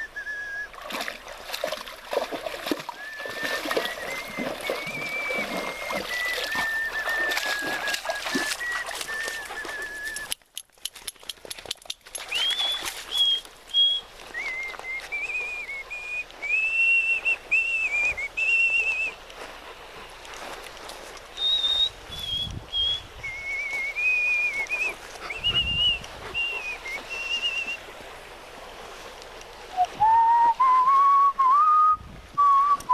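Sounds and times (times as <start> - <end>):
person whistling a tune: 0.0 - 0.8, 2.9 - 10.4, 12.2 - 19.2, 21.4 - 27.8, 29.8 - 32.9.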